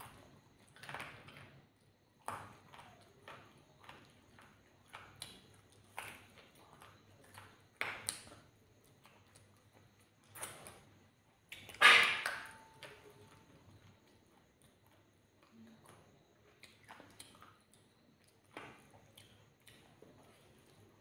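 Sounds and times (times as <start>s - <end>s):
lip smacks and clicks: 2.2s - 10.8s, 14.6s - 20.8s
person chewing food: 2.2s - 11.8s, 13.2s - 21.0s.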